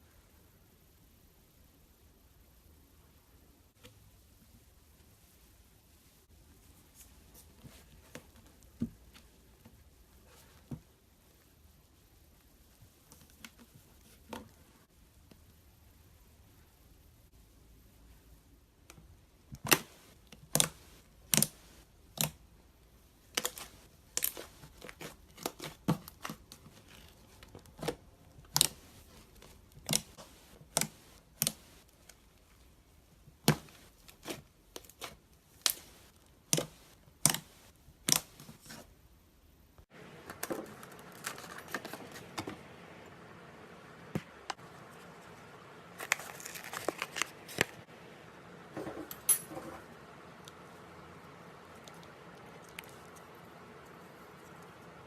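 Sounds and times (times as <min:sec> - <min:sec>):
crinkly rustling: 0:39.9 - 0:42.7, 0:44.3 - 0:47.9.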